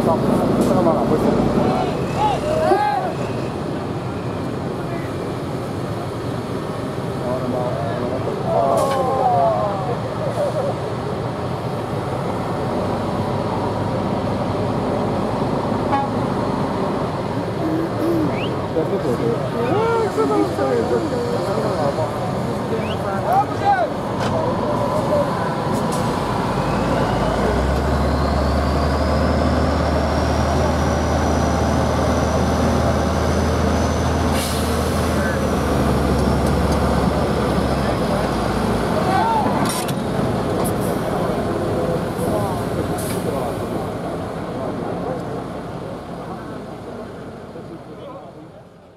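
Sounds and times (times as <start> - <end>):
truck engine droning: 0.0 - 47.9.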